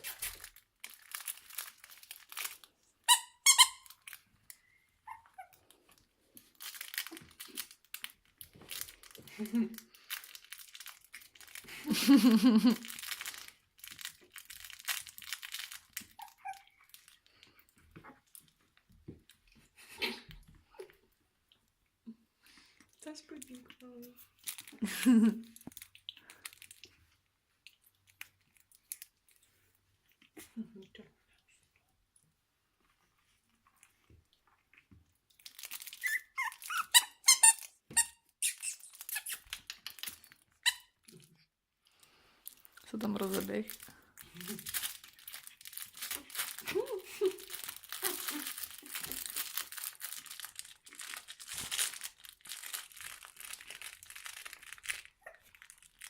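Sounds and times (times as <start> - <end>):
crinkly rustling: 0.0 - 21.1, 22.9 - 30.4, 32.8 - 37.7, 38.8 - 41.3, 42.1 - 56.0
puppy crying: 5.0 - 5.6, 16.2 - 16.8, 36.0 - 37.5
faint short squeaks: 36.0 - 39.4.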